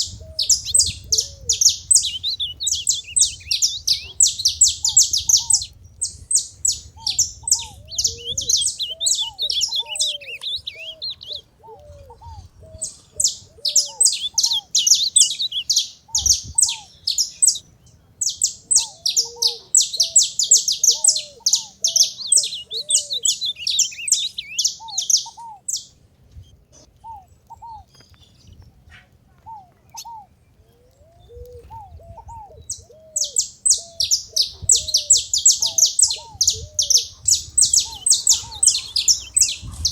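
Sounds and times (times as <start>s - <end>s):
bird singing sharp notes: 0.0s - 11.5s, 12.8s - 25.9s, 33.2s - 39.9s
short arched bird calls: 0.0s - 17.6s, 18.3s - 25.8s, 33.2s - 39.9s.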